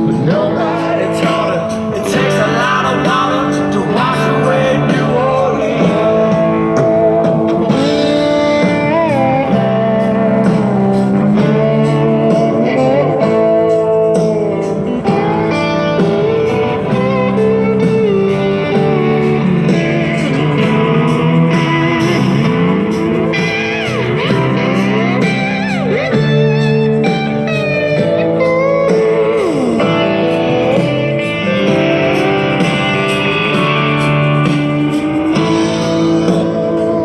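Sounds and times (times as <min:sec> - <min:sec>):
blues-rock song through speakers: 0:00.0 - 0:37.0.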